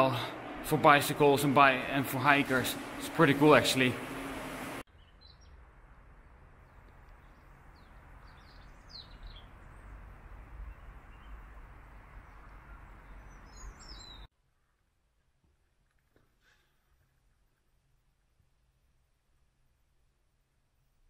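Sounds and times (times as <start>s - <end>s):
small birds chirping: 4.9s - 5.6s, 6.6s - 14.8s.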